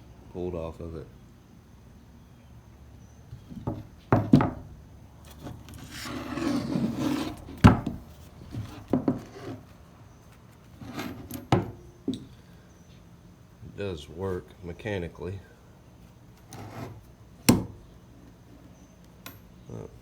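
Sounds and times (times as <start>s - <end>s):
wood rubbing and scraping: 3.4s - 11.7s.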